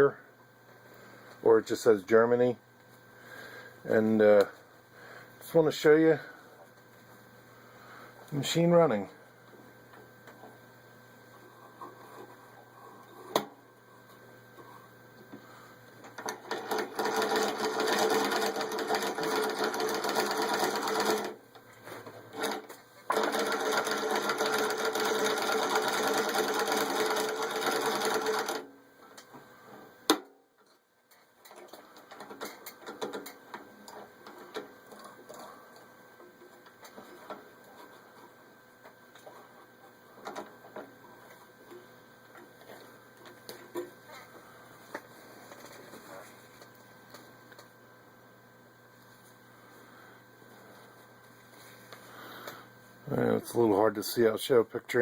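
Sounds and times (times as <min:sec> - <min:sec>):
hand-crank sewing machine clatter: 0:16.2 - 0:21.4, 0:22.3 - 0:28.6.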